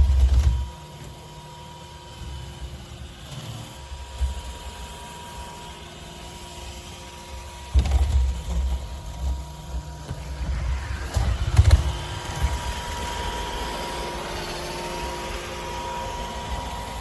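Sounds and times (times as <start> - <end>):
low rumble: 9.9 - 15.1
robot vacuum motor whine: 9.9 - 17.0.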